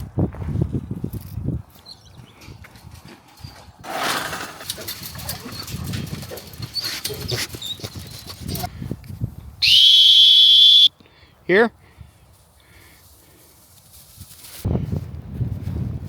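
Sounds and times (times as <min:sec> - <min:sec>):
dog training whistle blast: 0:09.6 - 0:10.9
rustling through field cover: 0:11.9 - 0:16.0.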